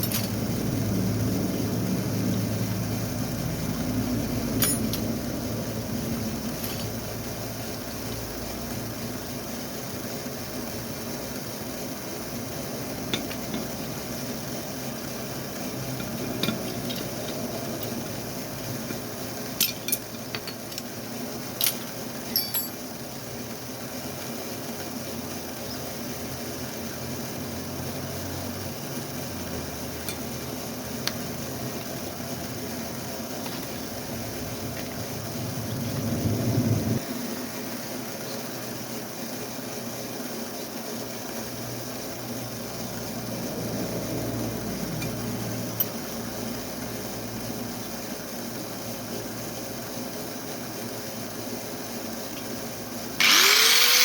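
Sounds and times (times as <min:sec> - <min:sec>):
small metal parts clicking: 0:00.0 - 0:00.4, 0:04.6 - 0:05.1, 0:15.8 - 0:18.1, 0:19.6 - 0:20.9, 0:21.6 - 0:22.8
steady low hum: 0:00.0 - 0:24.0, 0:25.4 - 0:39.8, 0:40.6 - 0:50.5
low rumble: 0:34.2 - 0:37.0.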